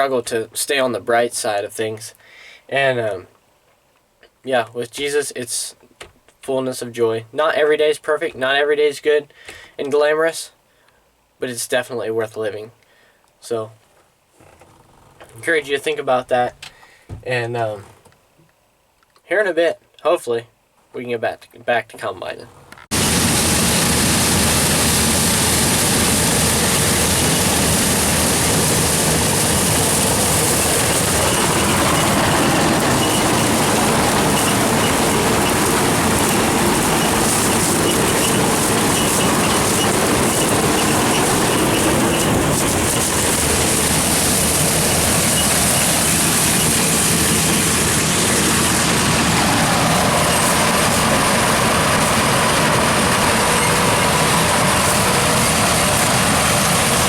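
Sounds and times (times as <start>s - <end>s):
constant high hiss: 0.0s - 57.0s
combine harvester drone: 22.9s - 57.0s.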